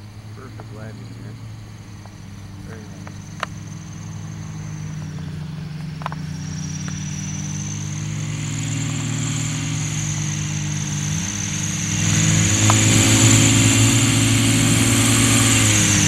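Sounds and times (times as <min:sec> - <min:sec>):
high whine: 0:00.0 - 0:16.0
light airplane engine droning: 0:00.0 - 0:16.0.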